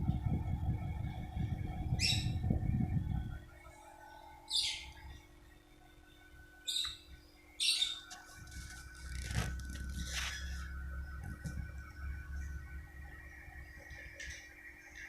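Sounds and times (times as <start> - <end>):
low rumbling noise: 0.0 - 5.6, 8.2 - 15.0
bird chirping: 1.9 - 2.4, 3.7 - 5.3, 6.1 - 8.2.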